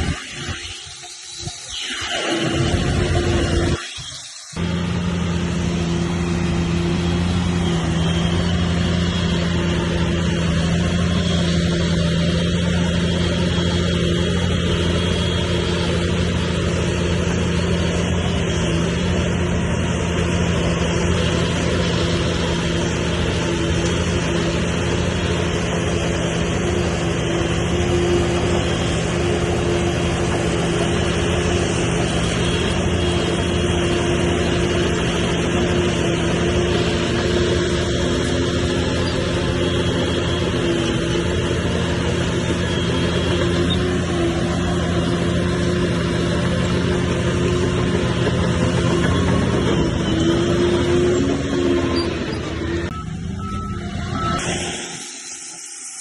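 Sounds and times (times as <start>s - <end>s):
heavy diesel engine running: 0.0s - 1.6s, 2.4s - 3.8s, 4.6s - 56.0s.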